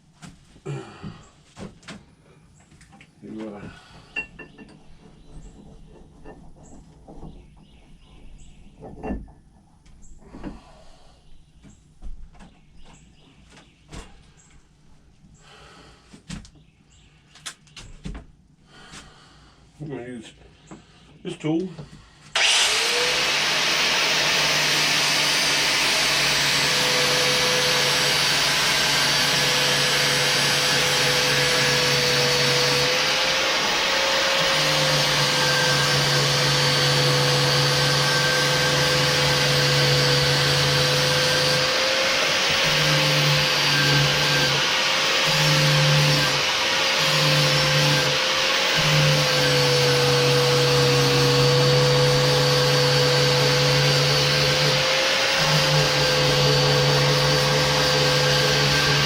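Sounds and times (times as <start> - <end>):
power tool high whine: 22.3 - 59.0
tool grinding on steel hum: 22.3 - 59.0.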